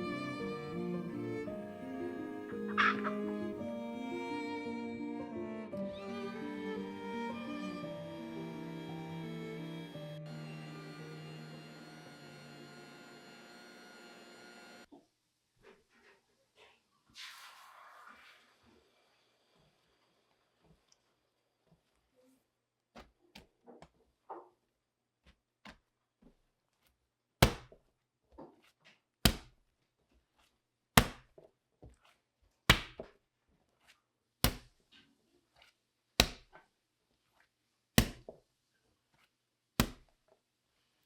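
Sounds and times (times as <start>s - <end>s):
sharp chopping knocks: 27.4s - 27.8s, 29.3s - 29.5s, 31.0s - 31.3s, 32.7s - 33.1s, 34.5s - 34.7s, 36.2s - 36.5s, 38.0s - 38.3s, 39.8s - 40.0s.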